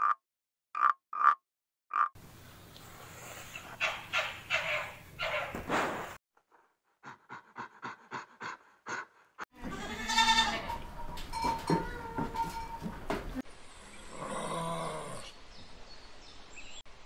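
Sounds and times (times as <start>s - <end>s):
goats bleating: 9.6s - 10.8s.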